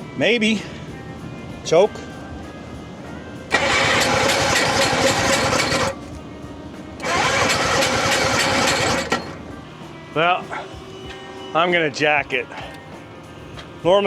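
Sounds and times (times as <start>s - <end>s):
rotary engine cranking: 3.5s - 6.2s, 7.0s - 9.6s, 12.3s - 13.0s.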